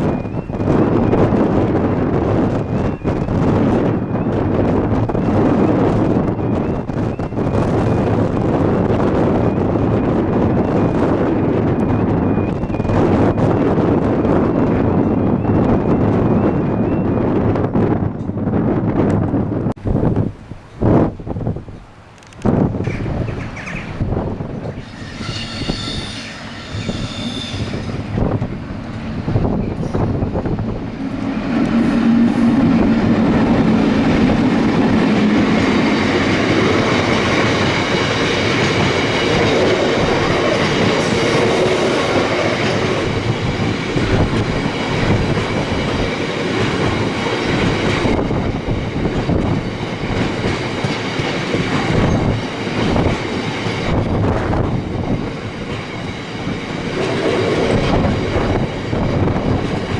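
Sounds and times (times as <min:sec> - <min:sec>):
train wheels clattering over rails: 0:24.6 - 0:59.9
wheel squeal: 0:24.7 - 0:28.2.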